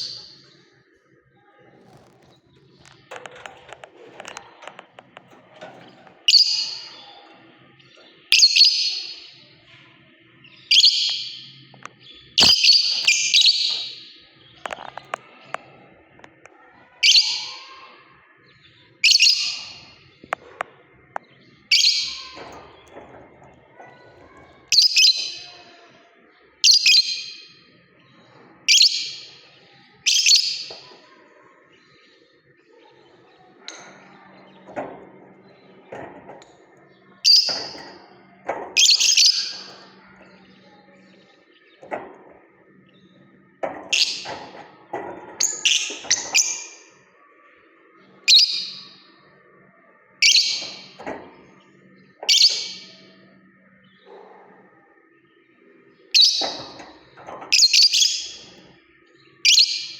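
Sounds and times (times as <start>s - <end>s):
lovebird high-pitched calls: 6.3s - 7.0s, 8.3s - 9.3s, 10.7s - 11.5s, 12.4s - 14.2s, 48.3s - 48.9s, 50.2s - 51.0s, 52.3s - 53.0s, 56.1s - 56.7s, 57.5s - 58.5s, 59.4s - 59.9s.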